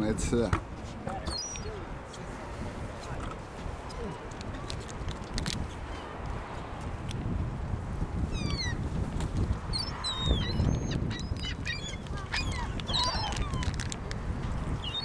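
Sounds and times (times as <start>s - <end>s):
gulls calling: 1.1s - 1.9s, 8.3s - 8.8s, 9.7s - 13.8s, 14.8s - 15.0s.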